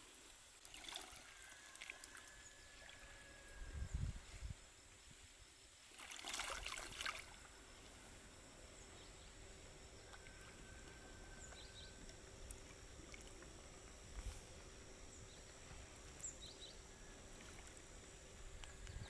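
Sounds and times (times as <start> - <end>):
faint background noise: 0.0 - 19.0
rush of water: 5.9 - 7.5.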